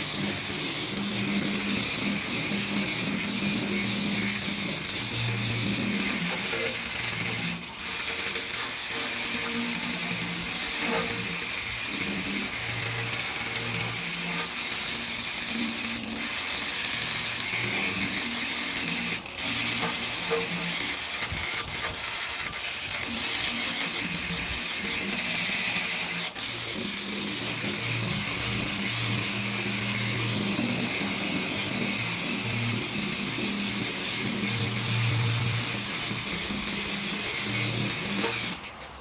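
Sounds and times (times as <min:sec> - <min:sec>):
workshop clatter: 0:03.7 - 0:15.1, 0:17.5 - 0:26.2, 0:30.2 - 0:39.0.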